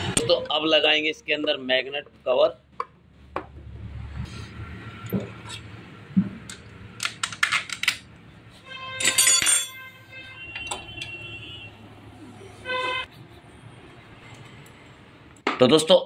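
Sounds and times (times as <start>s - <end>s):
ringing metallic rattle: 9.0s - 9.9s
metal tools clinking: 9.0s - 10.0s.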